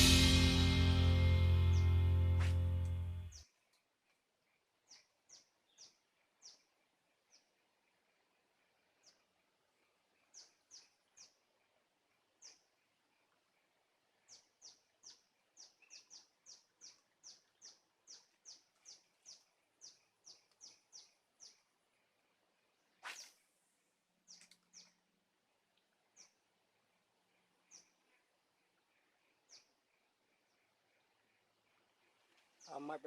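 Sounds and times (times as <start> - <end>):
brief sharp noise: 0.0 - 3.3
high falling bird chirps: 0.0 - 3.4.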